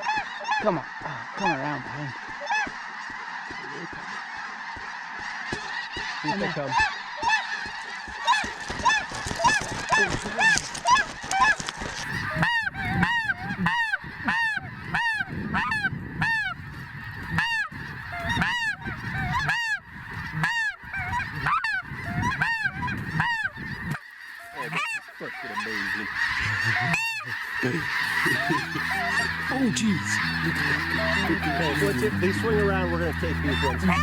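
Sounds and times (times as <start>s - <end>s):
flock of geese calling: 0.0s - 34.0s
goose loud high call: 24.4s - 34.0s.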